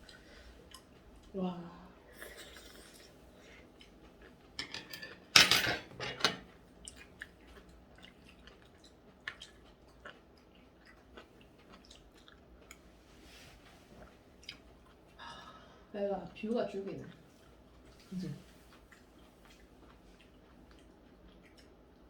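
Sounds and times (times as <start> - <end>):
chewing: 0.0 - 1.4, 2.1 - 5.3, 6.6 - 15.2, 16.9 - 22.0
cutlery and dishes clicking: 4.6 - 6.5.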